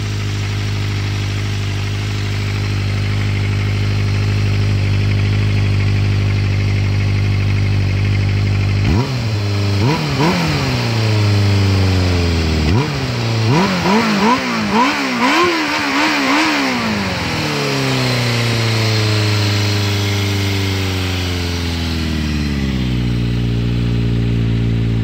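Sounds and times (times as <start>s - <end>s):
motorcycle engine revving and idling: 0.0s - 25.0s.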